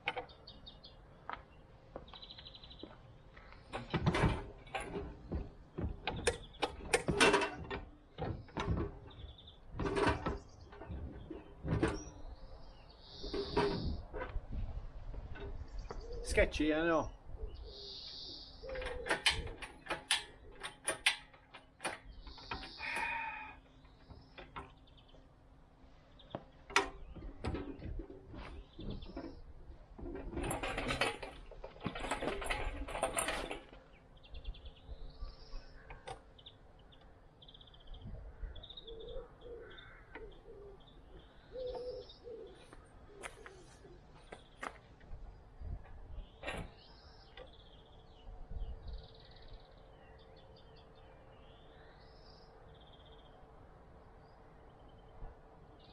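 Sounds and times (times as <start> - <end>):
birds chirping: 0.0 - 55.9
sharp knocks and clicks: 3.6 - 12.2, 18.7 - 22.8, 26.3 - 33.9
dove cooing: 18.6 - 19.6, 38.4 - 44.3
rattling clatter: 26.7 - 34.0.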